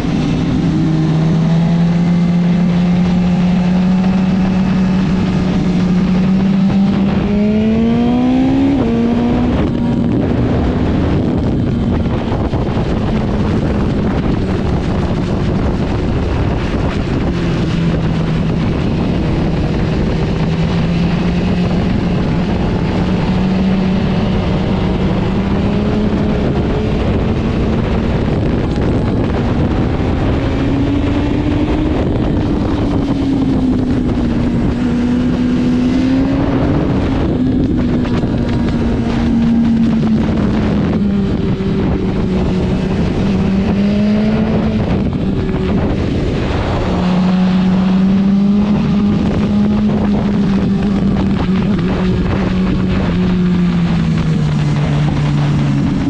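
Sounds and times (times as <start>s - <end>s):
motorcycle engine running at speed: 0.0s - 56.0s
wind rush: 0.0s - 56.0s.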